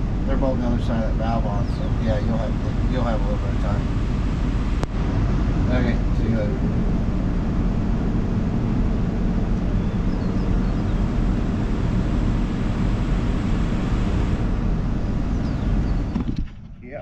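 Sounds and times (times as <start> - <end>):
heavy engine running: 0.0 - 16.8.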